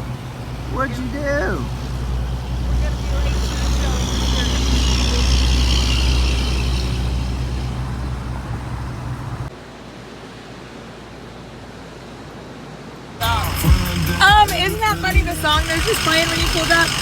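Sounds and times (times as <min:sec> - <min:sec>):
vehicle engine humming: 0:00.0 - 0:09.5, 0:13.2 - 0:17.0.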